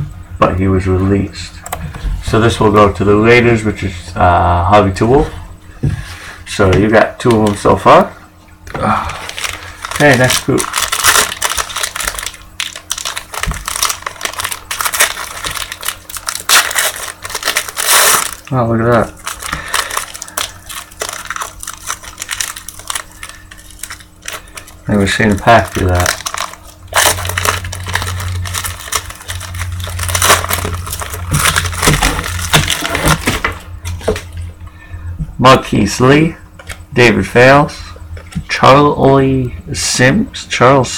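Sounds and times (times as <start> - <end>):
steady low hum: 0.0 - 40.9
foil wrapper tearing and crinkling: 8.8 - 34.3.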